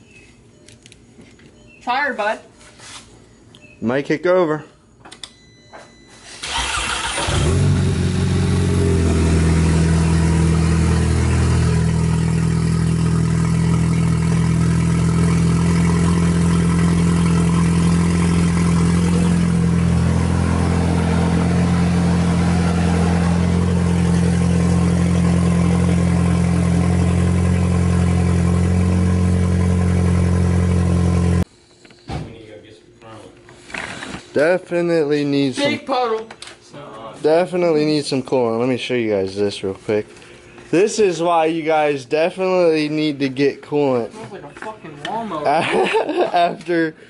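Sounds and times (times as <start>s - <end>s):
car engine idling: 6.6s - 31.4s.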